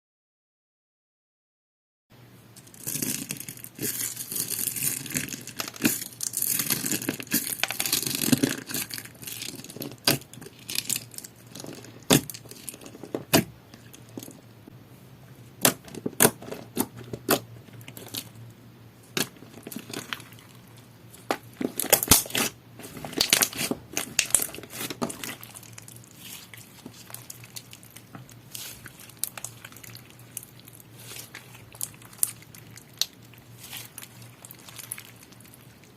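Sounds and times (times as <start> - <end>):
slime squished by hand: 21.2 - 35.9.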